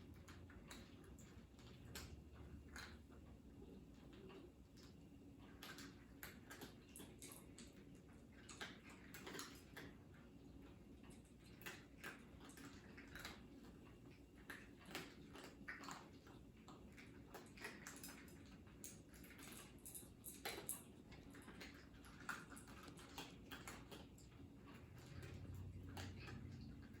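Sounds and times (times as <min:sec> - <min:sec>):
cats chewing clicks: 0:00.0 - 0:27.0
low room hum: 0:00.0 - 0:27.0.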